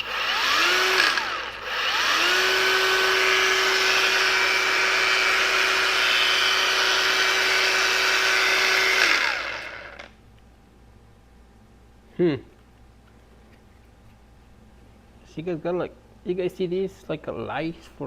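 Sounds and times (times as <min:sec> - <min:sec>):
angle grinder motor whine: 0:00.0 - 0:10.2.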